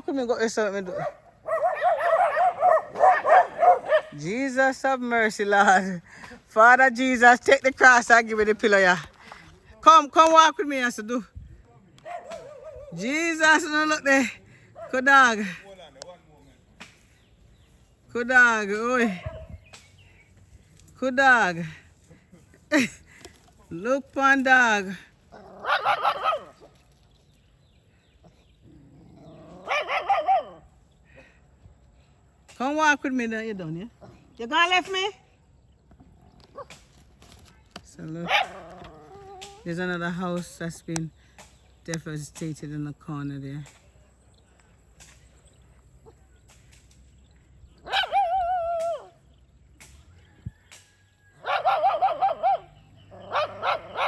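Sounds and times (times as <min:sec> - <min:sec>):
dog barking: 0:00.9 - 0:04.2, 0:12.0 - 0:13.0, 0:25.6 - 0:26.7, 0:29.6 - 0:30.6, 0:38.2 - 0:38.8, 0:47.8 - 0:48.6, 0:51.4 - 0:54.0.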